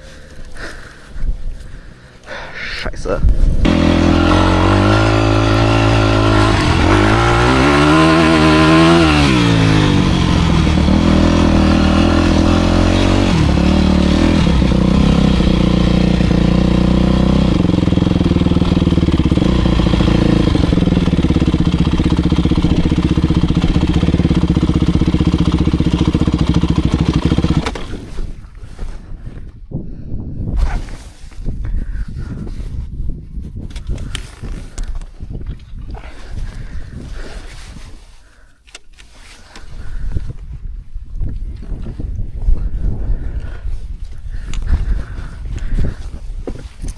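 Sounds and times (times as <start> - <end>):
motocross bike engine running: 3.6 - 28.1.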